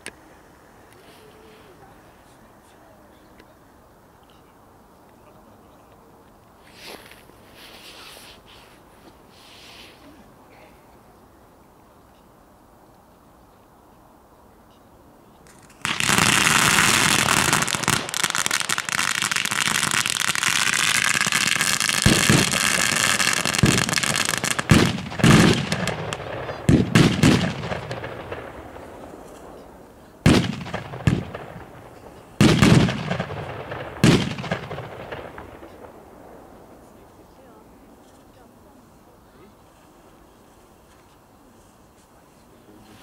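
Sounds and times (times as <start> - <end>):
fireworks hissing and crackling: 6.6 - 10.1, 15.4 - 43.0
fireworks booming bangs: 15.5 - 38.0.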